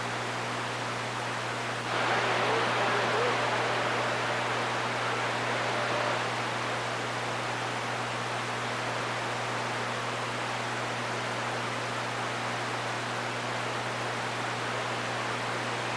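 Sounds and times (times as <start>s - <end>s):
radio static hiss: 1.9s - 7.6s.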